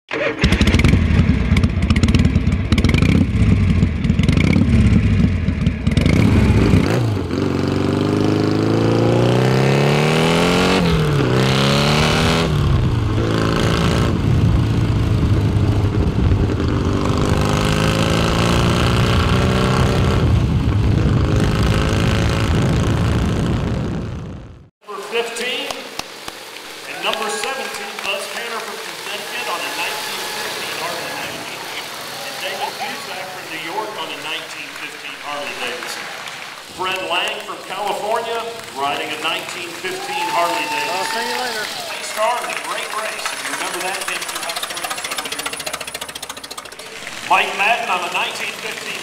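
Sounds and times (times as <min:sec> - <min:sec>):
motorcycle engine accelerating: 0:00.1 - 0:24.7, 0:41.6 - 0:49.0.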